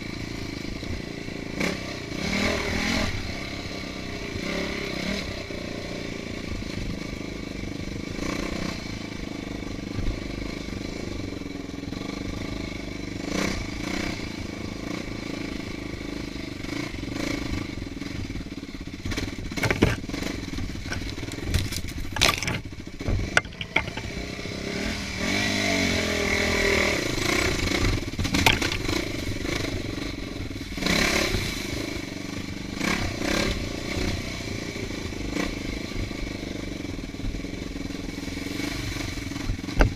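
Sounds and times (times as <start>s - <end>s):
dirt bike engine revving: 0.6s - 36.3s
sharp knocks and clatter: 19.1s - 24.2s, 28.2s - 29.1s.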